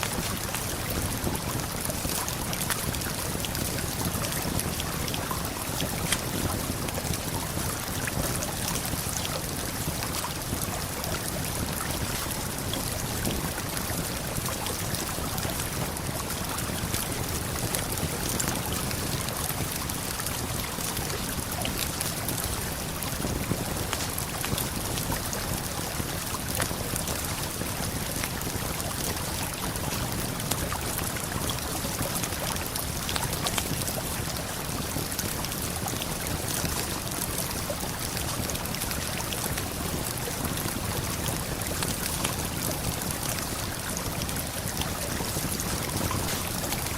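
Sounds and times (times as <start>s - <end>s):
campfire crackling: 40.4s - 46.9s
river flowing: 41.0s - 46.9s.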